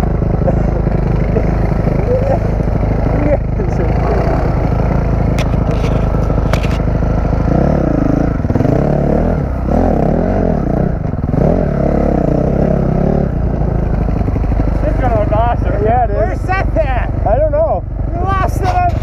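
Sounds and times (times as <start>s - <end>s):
dirt bike engine revving: 0.0s - 19.0s
sharp clicks and scrapes: 5.3s - 6.9s.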